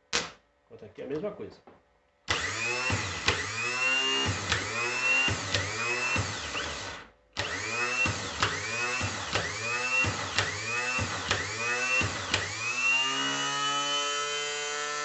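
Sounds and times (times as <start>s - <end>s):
starter motor whining: 2.3s - 13.4s.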